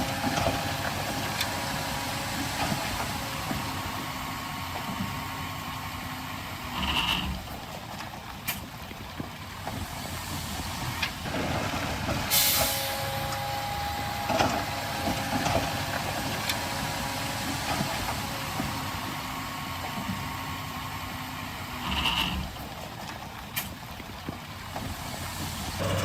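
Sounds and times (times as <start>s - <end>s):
heavy diesel machinery running: 0.0s - 7.9s, 9.4s - 22.9s, 24.6s - 26.0s
sharp air hiss: 12.3s - 13.0s.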